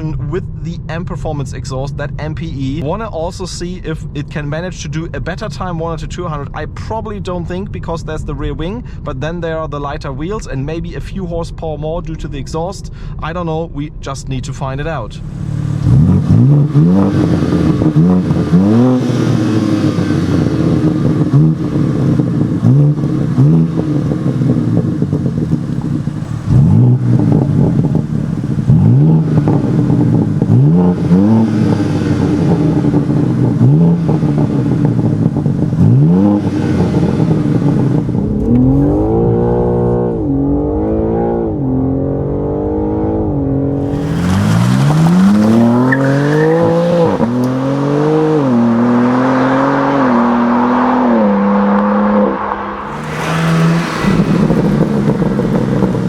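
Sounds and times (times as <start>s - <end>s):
car engine revving: 15.1s - 56.0s.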